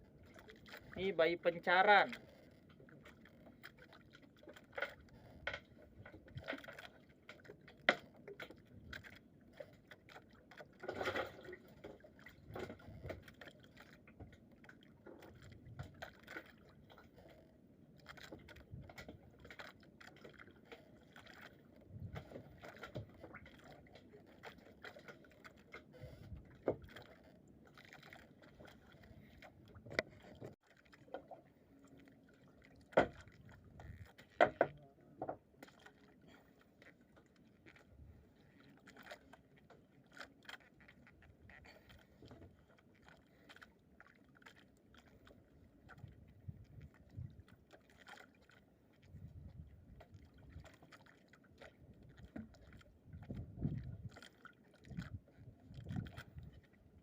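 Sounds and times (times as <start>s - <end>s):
faint knocks clicks and rustles: 32.8s - 36.0s.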